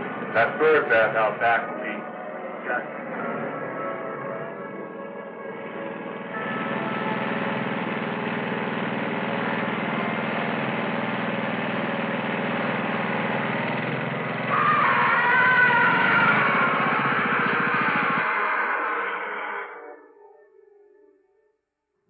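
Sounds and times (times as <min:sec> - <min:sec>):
lawn mower engine running: 0:05.5 - 0:18.9
loud wavering sound: 0:14.4 - 0:20.3.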